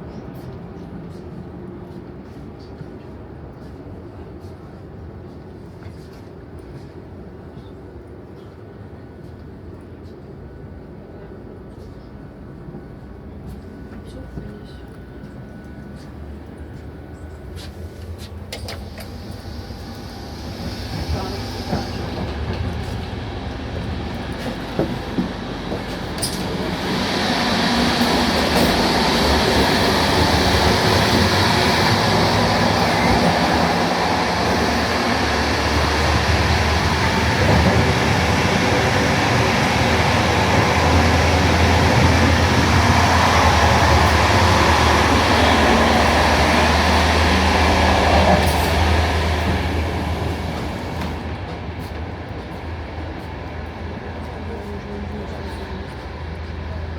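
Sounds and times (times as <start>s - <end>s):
electric train running: 18.5s - 51.2s.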